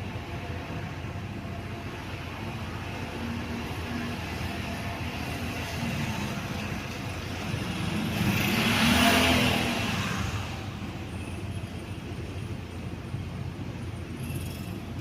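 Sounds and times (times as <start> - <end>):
vehicle passing by: 7.4 - 10.8.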